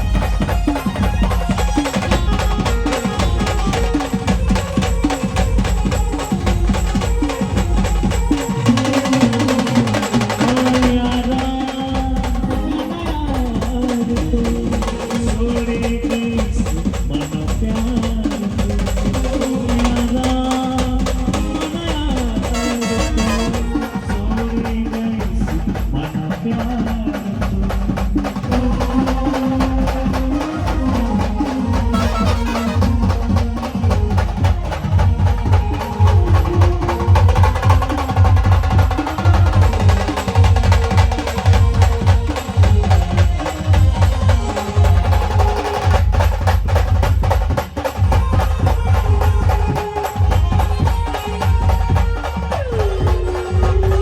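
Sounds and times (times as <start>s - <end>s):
band playing dance song: 0.0s - 54.0s
fast drumming: 0.0s - 54.0s
heavy bass: 28.4s - 47.4s
held melody notes: 30.4s - 38.2s.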